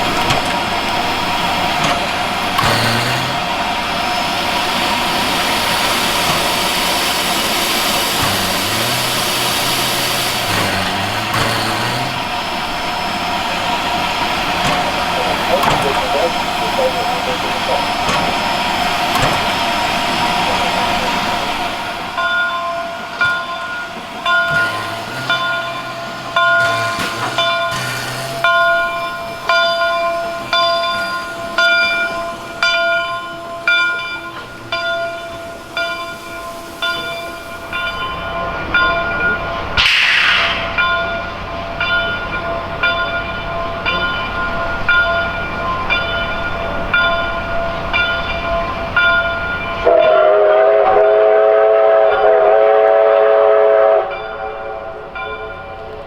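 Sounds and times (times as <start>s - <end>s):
loud blast of steam: 0.0s - 22.2s, 22.8s - 33.2s, 35.5s - 42.7s
steam hissing: 0.0s - 56.0s
steam locomotive bell ringing: 0.0s - 56.0s.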